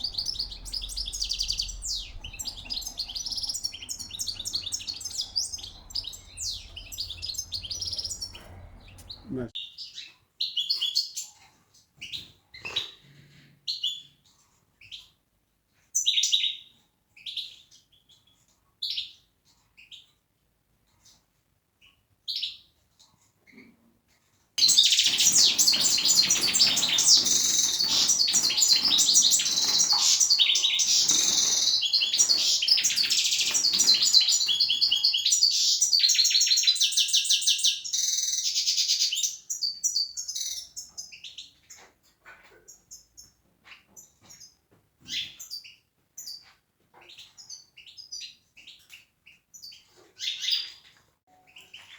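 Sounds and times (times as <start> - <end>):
goldfinch twittering song: 0.0 - 9.3, 24.6 - 41.4
goldfinch chirps: 0.0 - 11.4, 24.6 - 41.9, 42.7 - 51.9.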